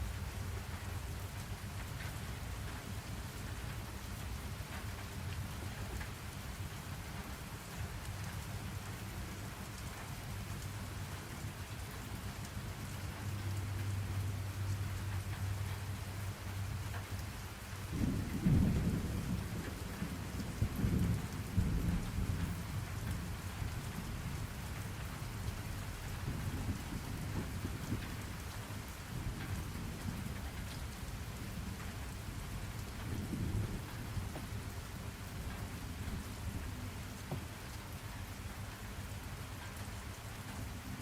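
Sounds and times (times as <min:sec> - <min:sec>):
steady rain: 0:00.0 - 0:41.0
thunder rumbling: 0:17.8 - 0:37.4.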